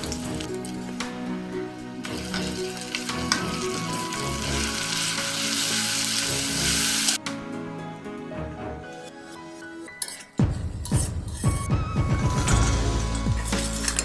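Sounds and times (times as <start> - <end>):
food sizzling in hot oil: 0.0 - 7.2
background music: 0.0 - 14.0.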